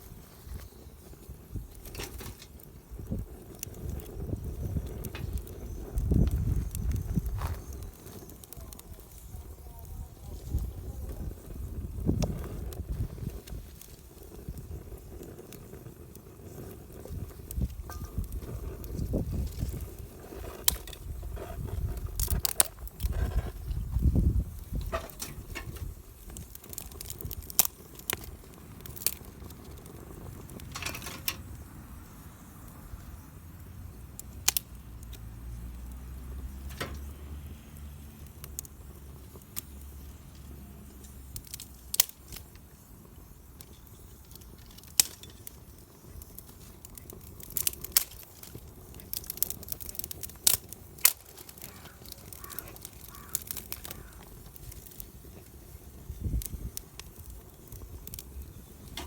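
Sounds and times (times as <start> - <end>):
campfire crackling: 0.0 - 59.0.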